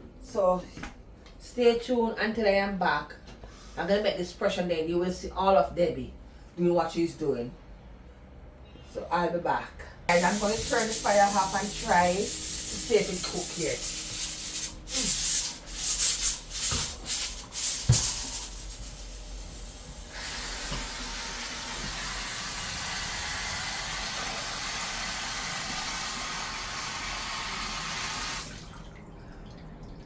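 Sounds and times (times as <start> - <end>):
water running from a tap: 10.1 - 30.0.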